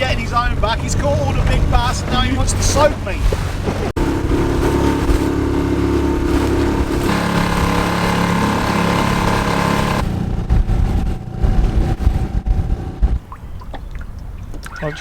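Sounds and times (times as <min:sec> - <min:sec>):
wind buffeting microphone: 0:00.0 - 0:07.1, 0:10.0 - 0:15.0
outboard motor running: 0:00.0 - 0:11.6.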